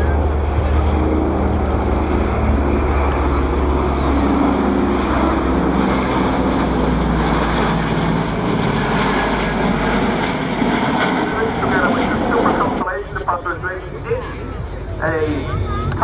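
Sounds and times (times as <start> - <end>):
jet noise: 0.0 - 16.0
radial piston engines droning: 0.0 - 16.0.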